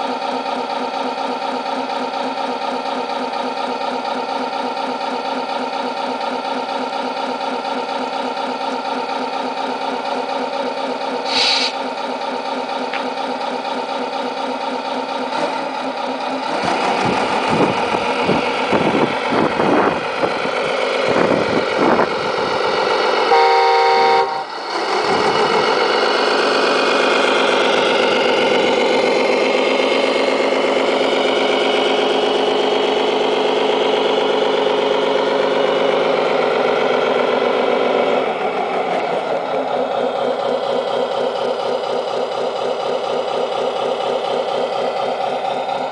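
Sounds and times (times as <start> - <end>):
simulated truck engine: 0.0 - 45.9
truck horn blast: 23.2 - 24.6.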